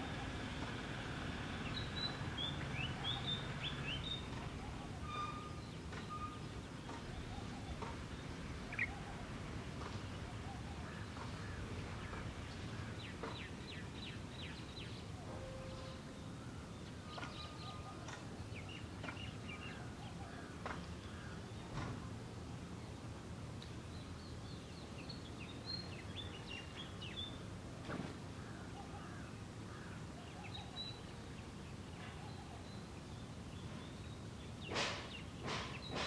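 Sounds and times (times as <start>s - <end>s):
wild birds chirping: 0.0s - 21.8s, 23.8s - 27.5s, 28.3s - 36.0s.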